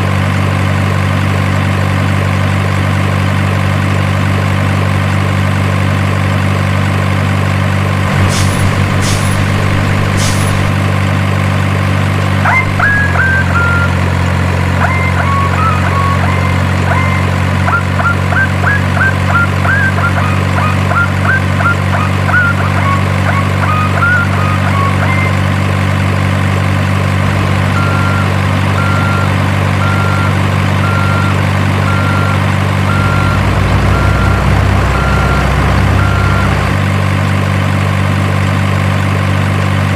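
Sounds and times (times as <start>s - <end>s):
simulated diesel engine sound: 0.0s - 39.9s
reversing beeper: 8.0s - 11.1s, 12.4s - 25.5s, 27.3s - 37.0s
short high chirps: 8.1s - 10.8s.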